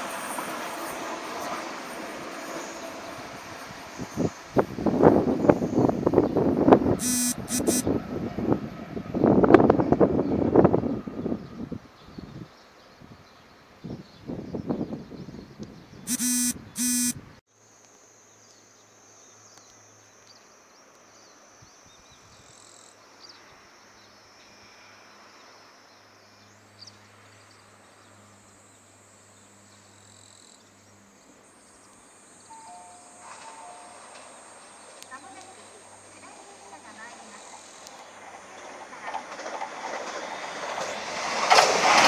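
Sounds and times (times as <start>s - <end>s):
approaching express train: 0.0s - 16.1s, 24.0s - 42.0s
high insect-like tones: 7.0s - 7.8s, 16.1s - 17.2s
loud pitched blasts: 7.0s - 7.8s, 16.1s - 17.2s.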